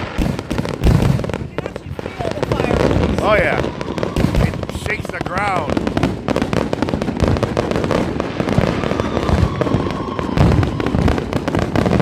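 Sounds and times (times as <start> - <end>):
firework crackling and popping: 0.0 - 12.0
faint steady whistle: 8.9 - 11.0.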